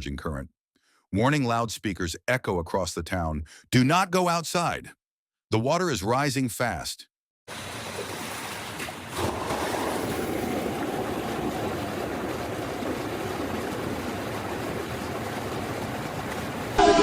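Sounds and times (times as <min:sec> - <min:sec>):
rushing floodwater: 0:07.5 - 0:17.0.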